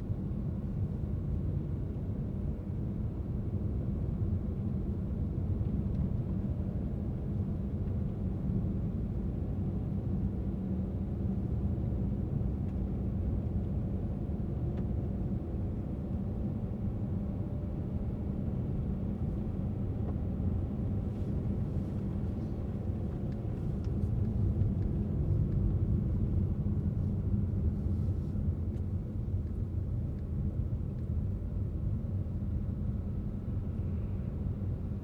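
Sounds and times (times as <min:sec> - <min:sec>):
car driving on road: 0:16.0 - 0:35.0.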